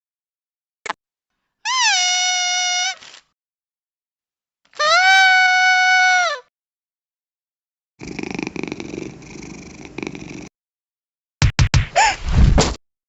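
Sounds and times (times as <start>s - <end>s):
cat purring: 8.0s - 10.5s.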